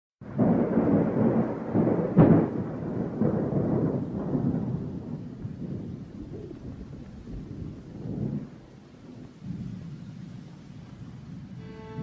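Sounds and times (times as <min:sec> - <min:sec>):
thunder crack: 0:00.2 - 0:08.6
rolling thunder: 0:00.2 - 0:12.0.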